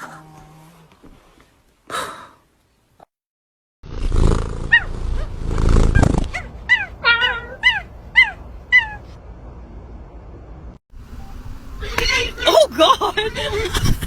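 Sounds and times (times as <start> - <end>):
dog yelping: 4.7 - 5.3, 6.3 - 9.1.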